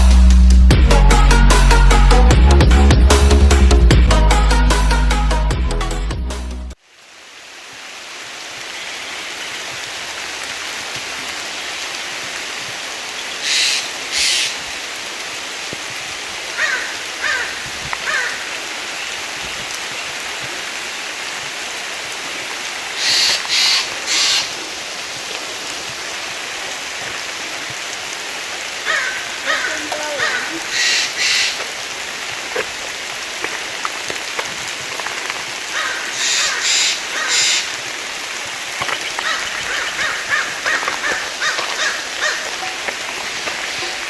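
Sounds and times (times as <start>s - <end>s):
rain falling: 0.0s - 5.0s, 6.7s - 44.0s
harsh bird calls: 13.2s - 14.6s, 22.9s - 24.6s, 28.8s - 31.6s, 35.8s - 37.8s, 39.0s - 42.8s
short bird chirps: 23.0s - 24.5s.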